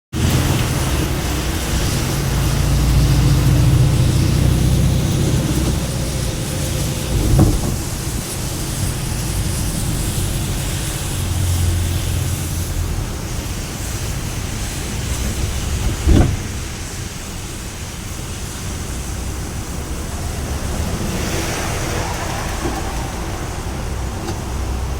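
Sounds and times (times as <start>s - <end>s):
heavy rain pouring: 0.1s - 24.9s
low rumble: 0.2s - 9.8s
short knocks: 7.0s - 8.1s, 15.2s - 17.0s.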